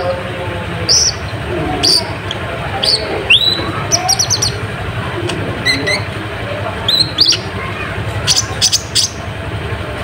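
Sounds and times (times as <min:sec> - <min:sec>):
lower chattering bird calls: 0:00.8 - 0:09.3
bird chirping and whistling: 0:00.9 - 0:02.1, 0:02.8 - 0:04.6, 0:05.6 - 0:06.1, 0:06.9 - 0:07.5, 0:08.3 - 0:09.2.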